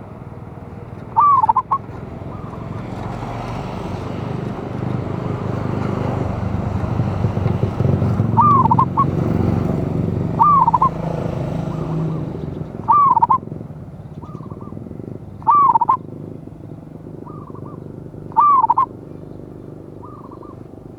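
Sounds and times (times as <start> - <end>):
zebra dove cooing: 0.0 - 5.3, 6.2 - 20.9
fainter bird call: 1.0 - 2.9, 8.2 - 9.3, 10.3 - 16.2, 17.2 - 20.7.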